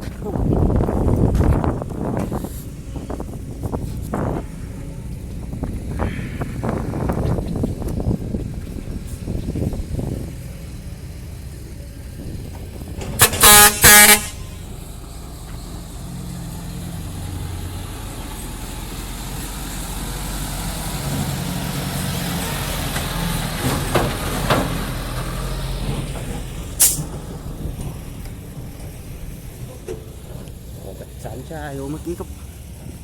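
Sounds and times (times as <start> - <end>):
heavy diesel engine running: 0.0 - 33.0
truck horn blasts: 13.1 - 14.8.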